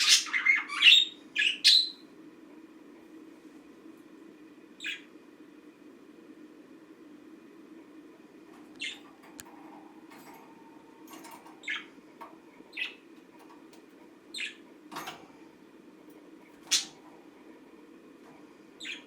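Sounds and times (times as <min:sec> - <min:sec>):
budgerigar chirping: 0:00.0 - 0:02.0, 0:18.8 - 0:19.0
steady low hum: 0:00.0 - 0:19.0.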